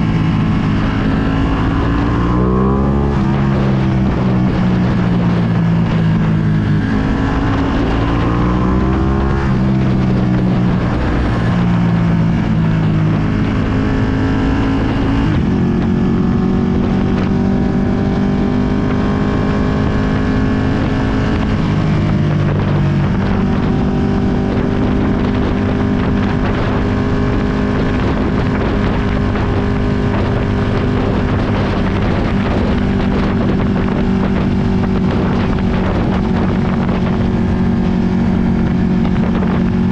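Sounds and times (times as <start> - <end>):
motorcycle engine revving: 0.0 - 39.9
wind noise on microphone: 0.0 - 39.9.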